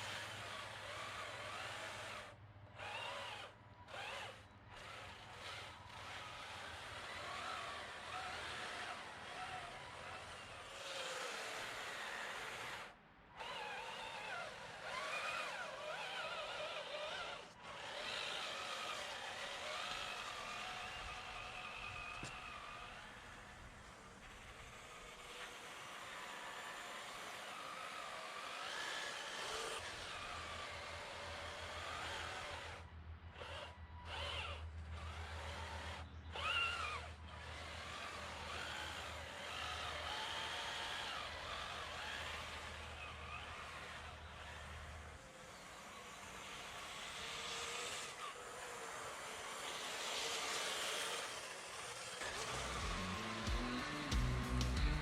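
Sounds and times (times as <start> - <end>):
toy truck motor whining: 0.0 - 55.0
steady low hum: 52.3 - 55.0.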